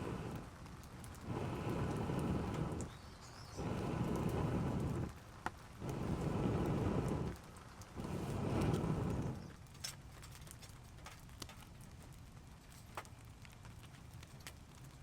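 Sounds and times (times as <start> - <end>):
steady background hiss: 0.0 - 9.6
raindrops dripping: 0.0 - 15.0.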